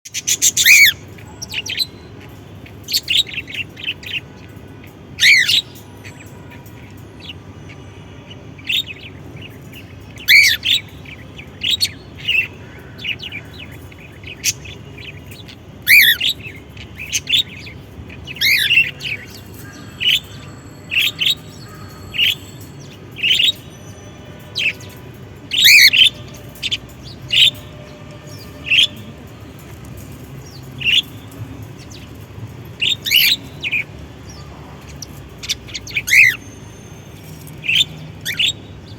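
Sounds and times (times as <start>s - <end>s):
parrot chirping and calling: 0.2s - 2.0s, 5.2s - 5.7s, 10.2s - 12.6s, 13.2s - 22.6s, 25.5s - 27.6s, 35.4s - 36.6s.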